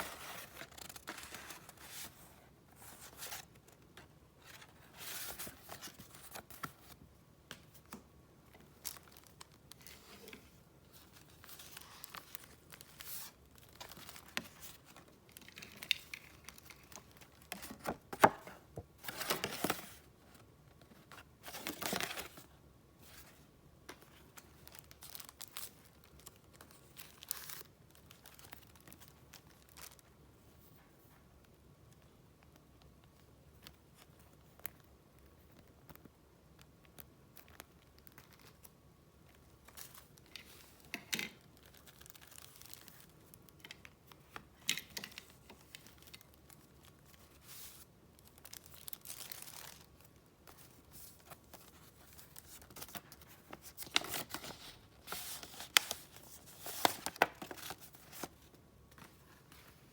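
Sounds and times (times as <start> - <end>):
paper rustling and crinkling: 0.0 - 7.0, 8.6 - 30.1, 41.6 - 59.9.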